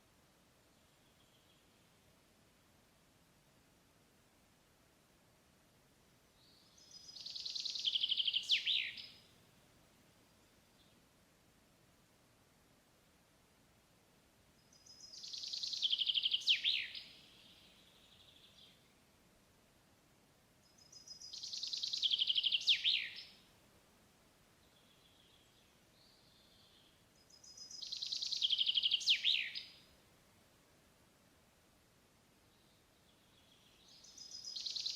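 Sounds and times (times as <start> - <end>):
songbird singing: 0.6 - 2.2, 6.2 - 11.2, 14.5 - 19.4, 20.5 - 30.4, 32.3 - 34.9.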